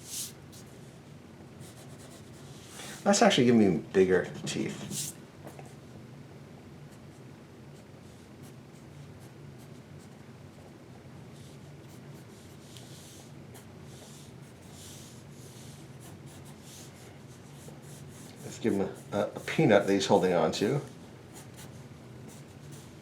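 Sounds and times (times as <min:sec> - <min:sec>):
low room hum: 0:00.0 - 0:23.0
pencil drawing on paper: 0:11.3 - 0:20.3, 0:21.3 - 0:23.0.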